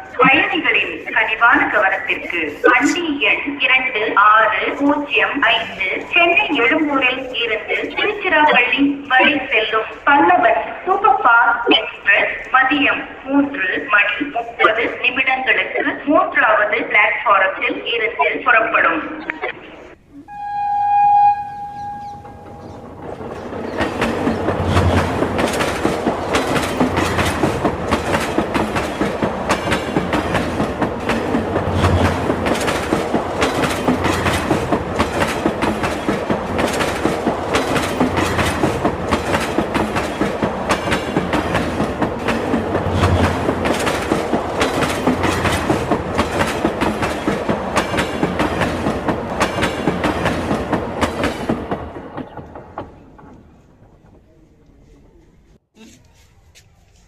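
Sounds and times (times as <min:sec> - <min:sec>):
train wheels clattering over rail joints: 0:22.0 - 0:54.2.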